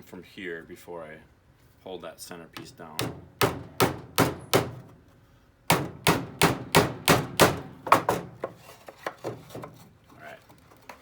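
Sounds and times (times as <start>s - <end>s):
hammer striking nails into wood: 3.0s - 4.9s, 5.7s - 8.5s.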